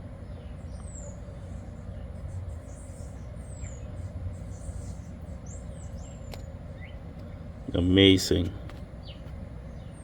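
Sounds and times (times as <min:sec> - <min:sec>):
birds chirping: 0:00.0 - 0:10.0
low outdoor rumble: 0:00.0 - 0:10.0.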